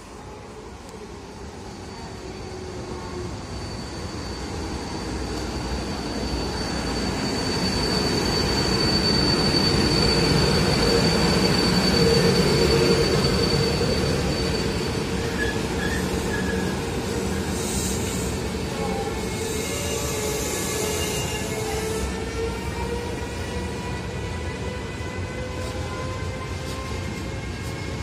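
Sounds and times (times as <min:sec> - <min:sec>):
train wheels rumbling on rails: 0:00.8 - 0:28.0
high-pitched wheel squeal: 0:03.4 - 0:23.1.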